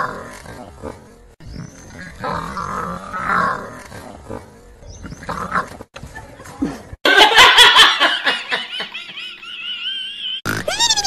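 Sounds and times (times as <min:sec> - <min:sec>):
woman laughing loudly: 0:07.0 - 0:11.0.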